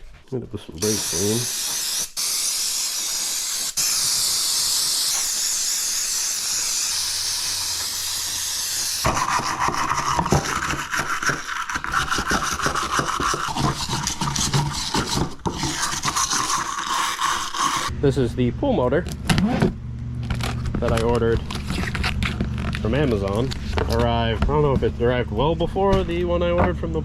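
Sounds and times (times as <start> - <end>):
aerosol spray hissing: 0.8 - 9.6, 12.9 - 17.9
scratchy rubbing and scraping: 7.6 - 17.9, 20.4 - 24.2.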